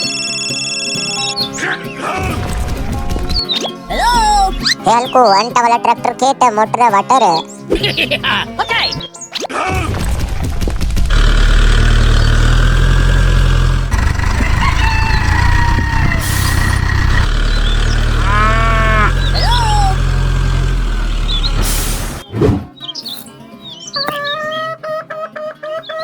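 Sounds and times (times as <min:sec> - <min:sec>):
birds chirping: 0:00.0 - 0:09.5, 0:11.1 - 0:26.0
cattle mooing: 0:11.1 - 0:22.2.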